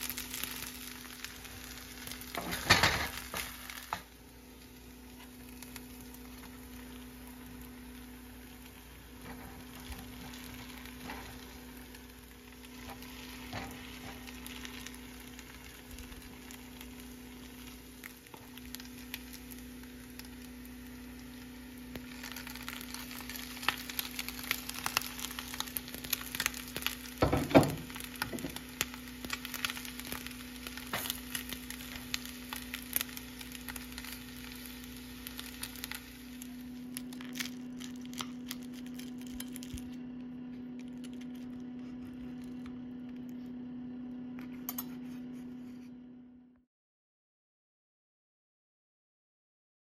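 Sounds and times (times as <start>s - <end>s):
food sizzling in butter: 0.0s - 39.9s
low hum: 0.0s - 46.6s.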